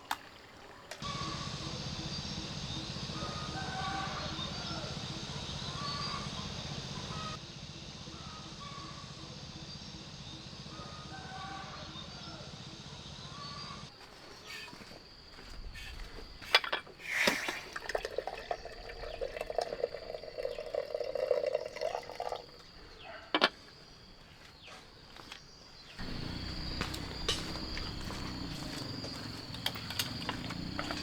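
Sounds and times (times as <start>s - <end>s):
liquid being poured: 17.2s - 22.6s
sharp knocks: 26.0s - 28.8s.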